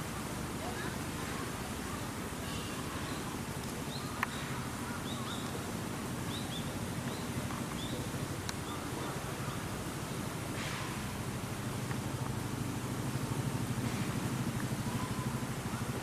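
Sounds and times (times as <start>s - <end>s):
low background rumble: 0.0s - 16.0s
small bird chirping: 2.5s - 5.6s, 6.3s - 9.0s.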